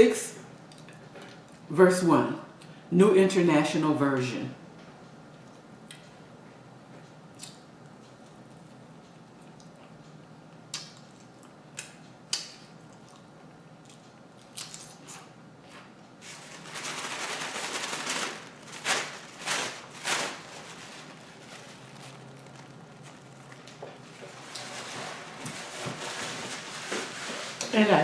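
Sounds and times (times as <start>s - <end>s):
rustling: 16.2s - 27.6s.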